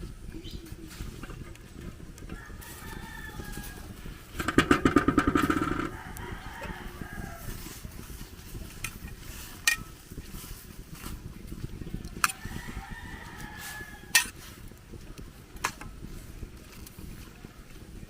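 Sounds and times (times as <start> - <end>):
low farmyard background: 0.0 - 18.0
rooster crowing: 2.3 - 4.0, 5.4 - 7.7, 12.3 - 14.3.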